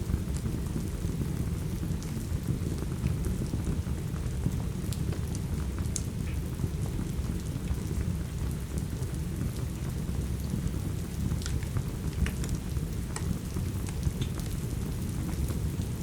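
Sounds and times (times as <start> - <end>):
fireplace fire crackling: 0.0 - 16.0
steady rain: 0.0 - 16.0.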